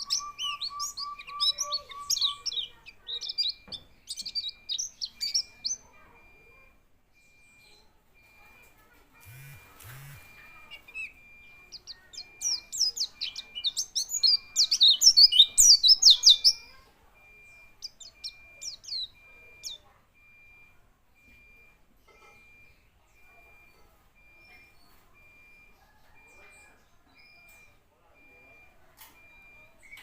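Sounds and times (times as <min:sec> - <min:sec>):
bird twittering chirps: 0:00.0 - 0:06.3, 0:09.2 - 0:20.6.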